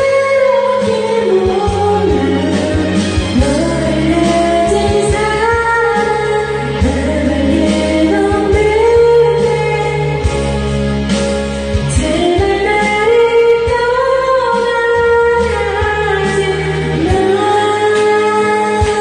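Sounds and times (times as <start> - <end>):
backing track with beat: 0.0 - 19.0
person singing karaoke: 0.0 - 19.0.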